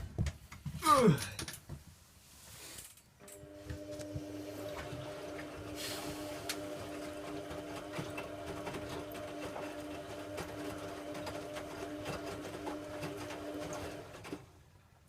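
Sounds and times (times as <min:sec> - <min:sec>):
washing machine motor humming: 0:03.2 - 0:14.6.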